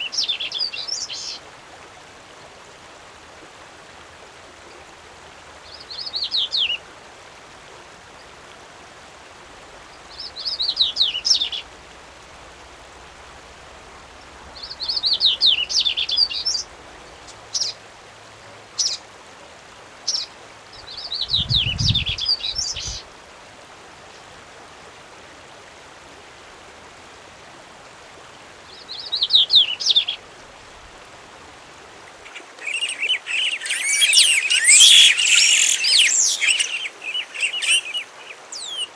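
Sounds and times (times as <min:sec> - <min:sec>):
songbird singing: 0:05.6 - 0:06.8, 0:09.8 - 0:11.9, 0:13.8 - 0:17.8, 0:18.4 - 0:19.1, 0:20.0 - 0:23.1, 0:28.7 - 0:30.3, 0:32.1 - 0:38.9.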